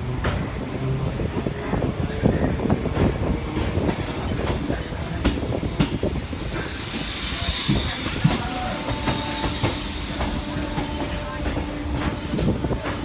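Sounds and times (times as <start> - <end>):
train rumbling on track: 0.0 - 13.0
high wheel squeal: 5.6 - 12.2.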